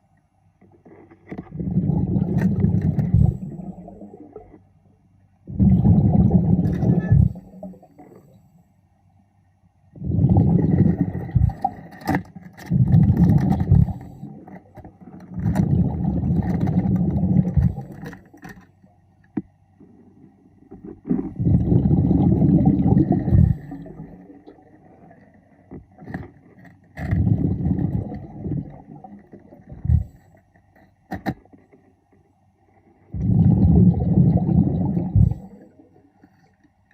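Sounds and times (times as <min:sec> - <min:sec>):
regulator exhalation bubbles underwater: 0:01.5 - 0:04.6, 0:05.5 - 0:08.3, 0:09.9 - 0:11.8, 0:12.7 - 0:14.5, 0:15.3 - 0:18.1, 0:21.2 - 0:25.2, 0:27.0 - 0:30.2, 0:33.1 - 0:35.9.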